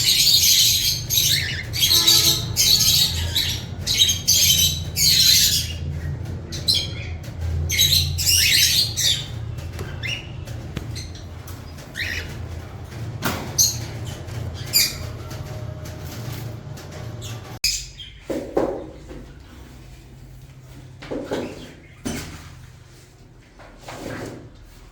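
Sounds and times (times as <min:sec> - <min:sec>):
parrots squawking and chirping: 0:00.0 - 0:18.2.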